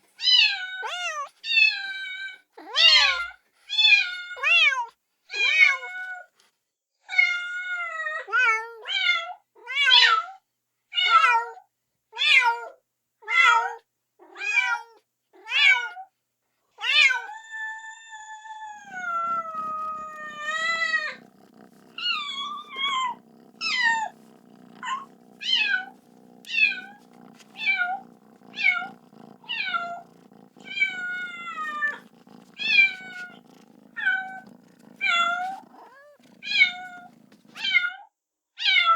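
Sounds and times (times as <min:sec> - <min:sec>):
kitten meowing: 0:17.0 - 0:37.8.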